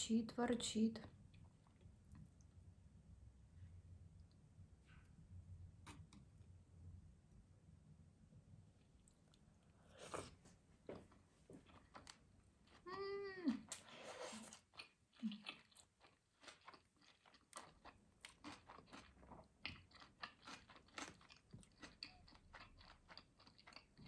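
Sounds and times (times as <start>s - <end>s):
chewing with crunches: 8.9s - 12.9s, 13.5s - 24.0s.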